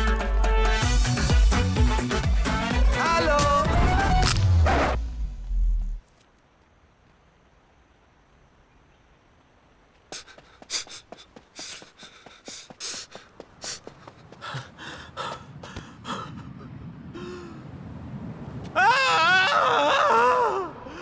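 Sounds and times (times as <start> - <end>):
person gasping and panting: 10.1 - 17.7
loud wavering wail: 18.7 - 21.0.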